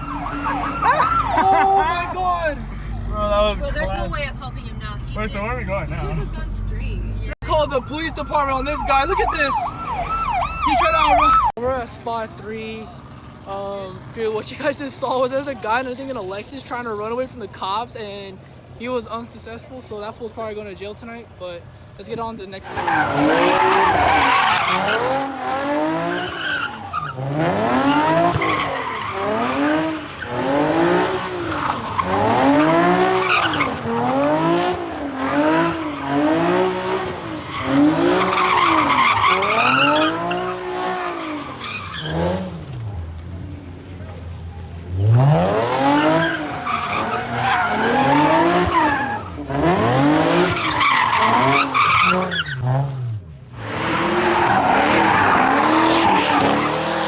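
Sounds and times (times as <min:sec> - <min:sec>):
tyres squealing: 0:22.6 - 0:42.6, 0:45.8 - 0:52.7
car engine revving: 0:22.7 - 0:57.0.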